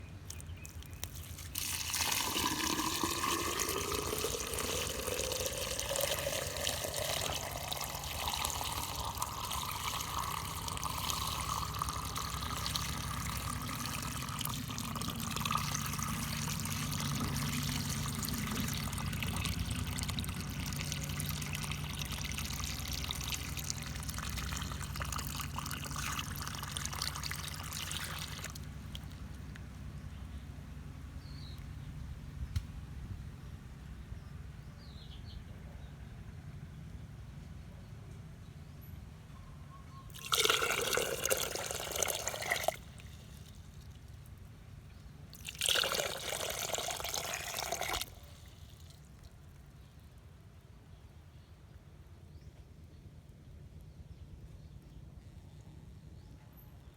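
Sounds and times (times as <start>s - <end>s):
water pouring rising pitch: 0.7s - 28.6s.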